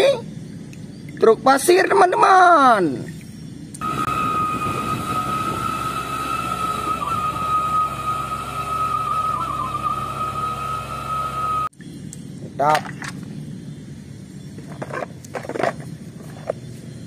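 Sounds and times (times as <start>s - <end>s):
steady high whine: 2.8s - 17.0s
truck engine rumbling: 3.7s - 11.7s.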